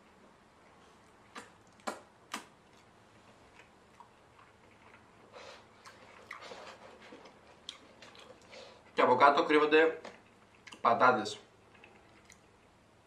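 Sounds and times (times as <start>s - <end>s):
crunchy chewing: 1.0s - 9.0s, 10.0s - 10.9s, 11.6s - 12.8s.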